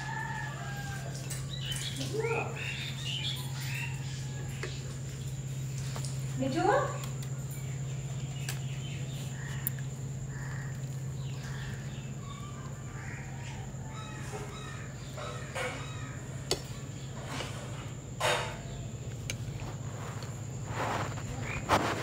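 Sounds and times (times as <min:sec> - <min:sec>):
birds calling: 0:00.0 - 0:22.0
harsh crow-like calls: 0:09.1 - 0:18.7.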